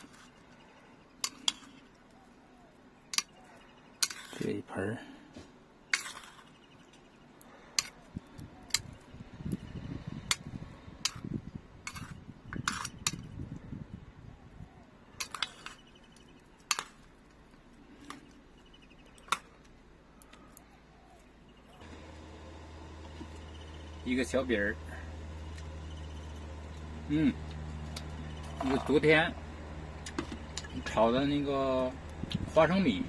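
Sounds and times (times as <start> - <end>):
soft rustling of food: 14.8 - 22.0.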